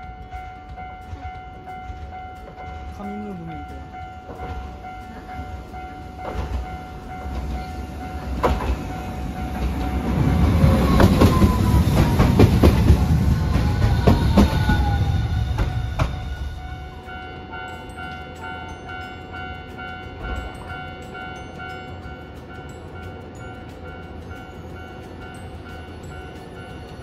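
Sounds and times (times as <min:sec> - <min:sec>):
tram whine falling in pitch: 0:00.0 - 0:19.2
tram rumbling past: 0:00.0 - 0:27.0
wheels knocking on rail joints: 0:00.0 - 0:27.0.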